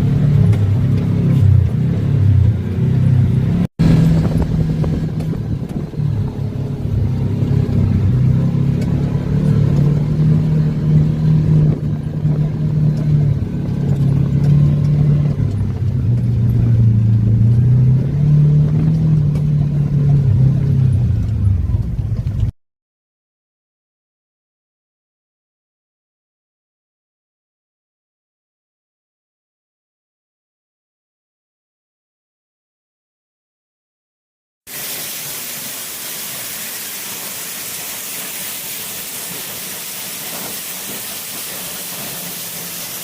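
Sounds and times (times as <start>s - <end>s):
off-road vehicle engine revving: 0.0s - 22.5s, 37.1s - 43.0s.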